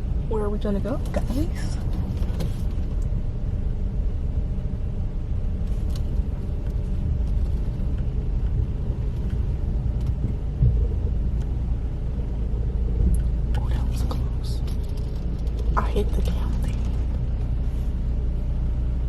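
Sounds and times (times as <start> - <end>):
car road and engine rumble: 0.0 - 19.0
low thump: 10.0 - 11.0.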